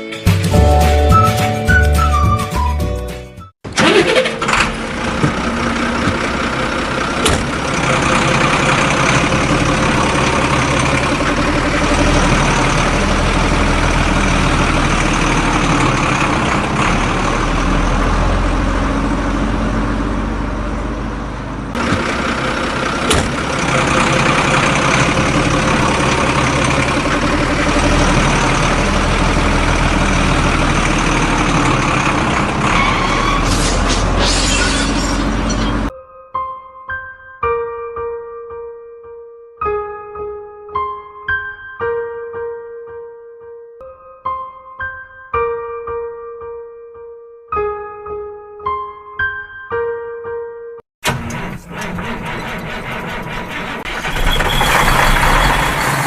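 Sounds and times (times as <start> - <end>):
heavy diesel engine running: 3.7 - 35.9, 51.0 - 56.0.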